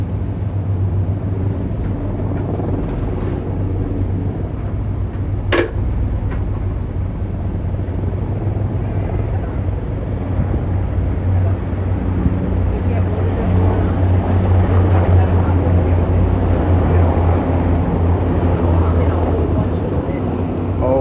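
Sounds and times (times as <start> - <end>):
low rumble of vehicles: 0.0 - 21.0
sharp click: 5.5 - 5.9.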